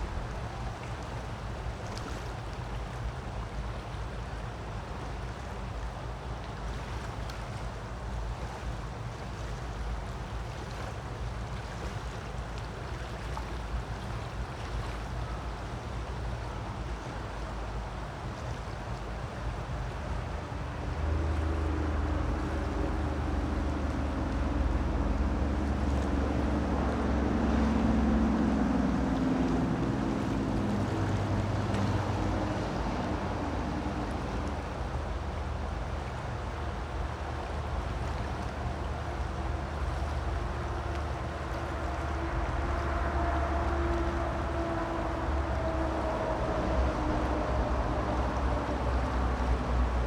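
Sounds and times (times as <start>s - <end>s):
creek water rushing: 7.7s - 50.0s
low engine drone: 20.2s - 50.0s.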